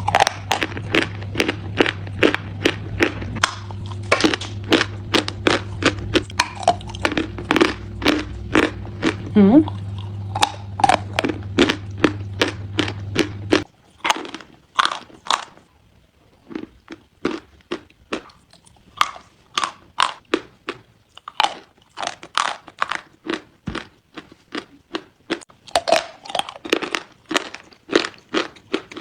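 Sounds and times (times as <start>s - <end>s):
low steady hum: 0.0s - 13.7s
chalk crunching being chewed: 0.0s - 15.7s, 16.4s - 29.0s.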